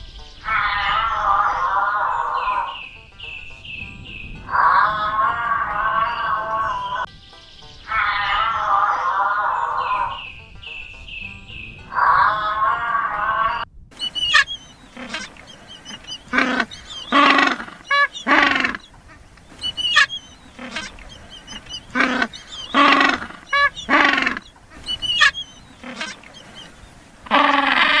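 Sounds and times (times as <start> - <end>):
bird honking calls: 0.0 - 28.0
thin high bird chirps: 14.0 - 27.0.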